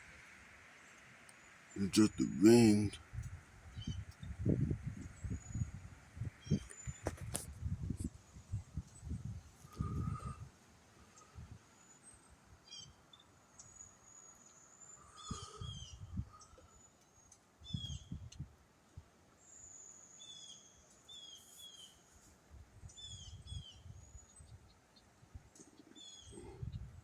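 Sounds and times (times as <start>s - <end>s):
songbirds chirping: 0.2s - 7.2s, 19.3s - 22.2s, 22.8s - 27.0s
wind rumbling on microphone: 3.0s - 10.5s, 26.4s - 27.0s.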